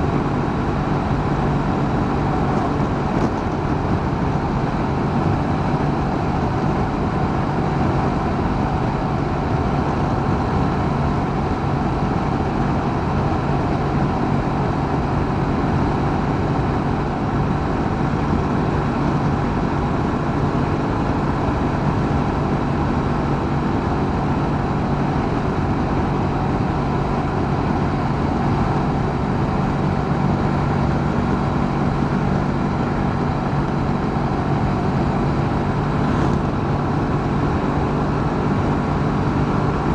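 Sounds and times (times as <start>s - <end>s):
rushing wind noise: 0.0s - 39.9s.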